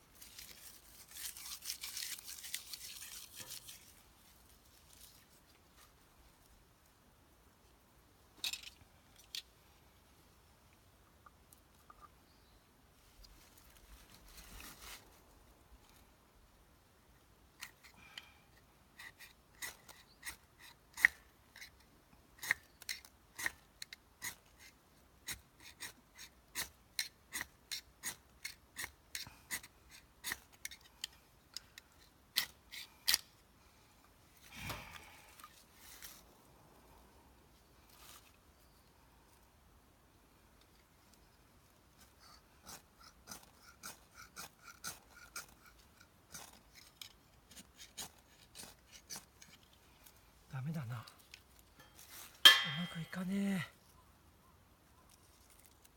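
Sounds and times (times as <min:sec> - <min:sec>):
handling rustle: 0:00.0 - 0:06.5, 0:13.1 - 0:16.0, 0:51.1 - 0:53.2.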